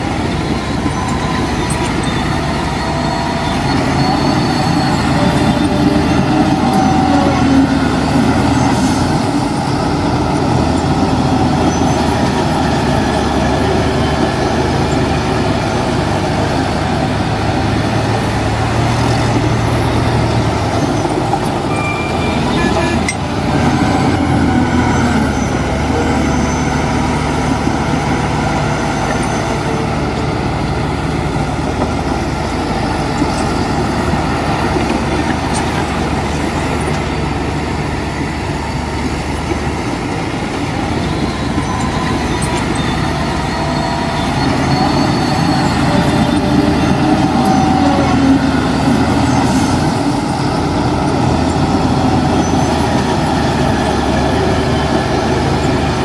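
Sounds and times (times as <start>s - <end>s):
diesel machinery engine running: 0.0s - 56.0s.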